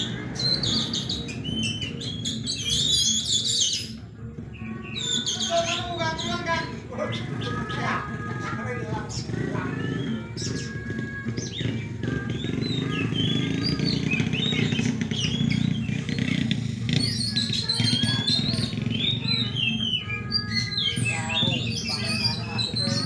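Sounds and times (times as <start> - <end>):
birds singing whistled phrases: 0.0 - 23.0
low din of voices: 4.0 - 11.3, 11.9 - 23.0.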